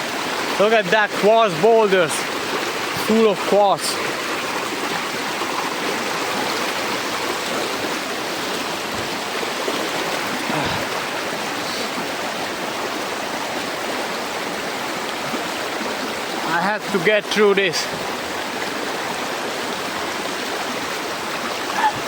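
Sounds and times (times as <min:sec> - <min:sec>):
river rushing over rocks: 0:00.0 - 0:22.0.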